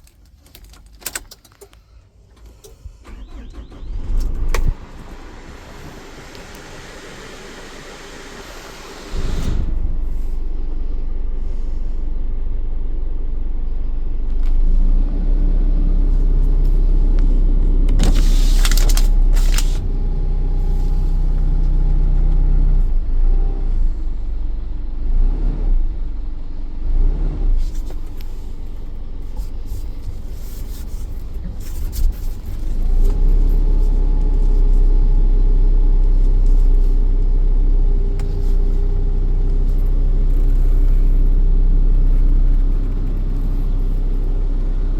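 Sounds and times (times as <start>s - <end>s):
diesel truck engine idling: 3.0s - 24.9s.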